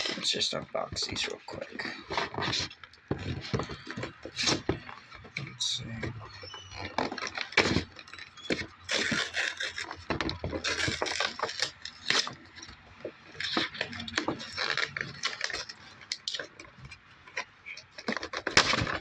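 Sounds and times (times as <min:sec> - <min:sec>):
cardboard and plastic rustling: 0:00.0 - 0:19.0.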